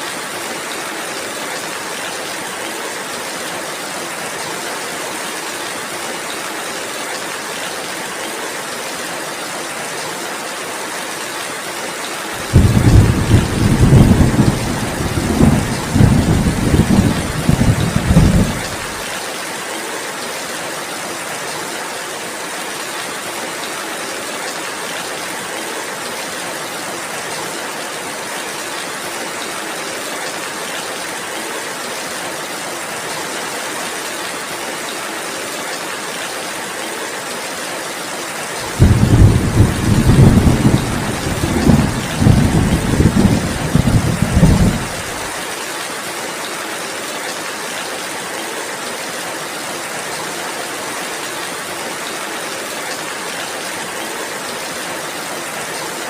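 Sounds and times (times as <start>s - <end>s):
steady rain: 0.0s - 56.0s
rolling thunder: 12.4s - 19.0s, 38.7s - 45.2s.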